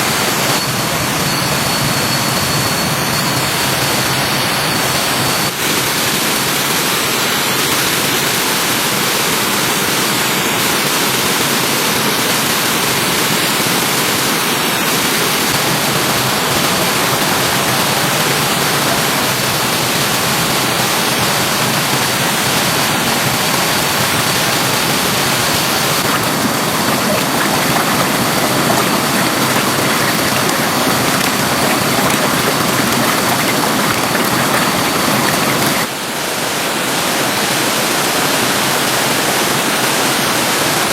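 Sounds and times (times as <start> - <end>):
stream water rushing: 15.6 - 35.9.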